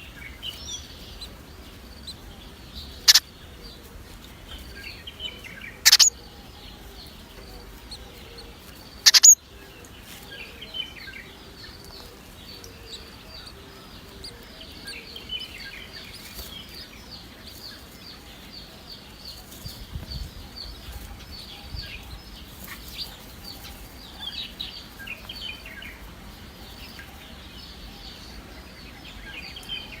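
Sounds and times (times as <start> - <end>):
baby birds peeping: 0.0 - 30.0.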